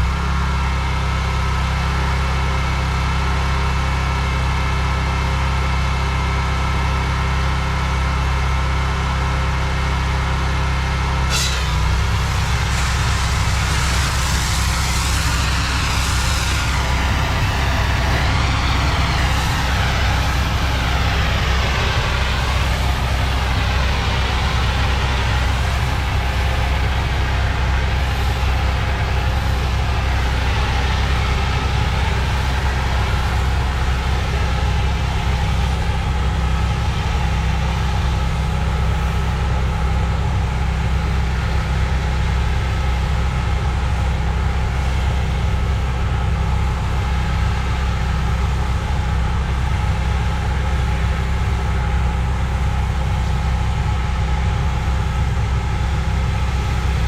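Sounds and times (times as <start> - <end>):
water spray hissing on concrete: 11.3 - 36.6
pressure washer engine hum: 11.3 - 57.0.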